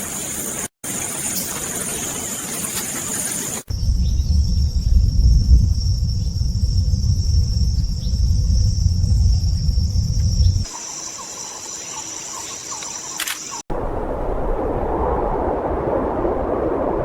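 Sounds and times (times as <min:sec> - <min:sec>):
insect chorus: 0:00.0 - 0:13.6
loud low rumble: 0:03.7 - 0:10.7.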